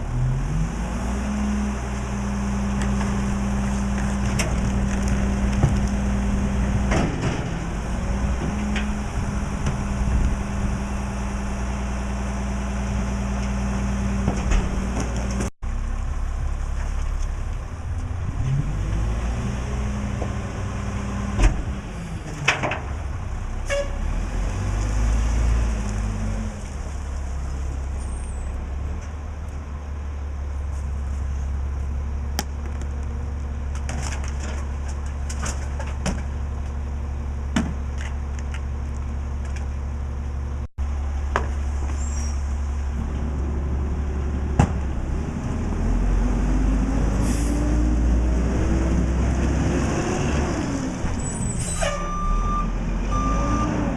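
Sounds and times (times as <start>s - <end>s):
truck diesel engine running: 1.7s - 23.7s.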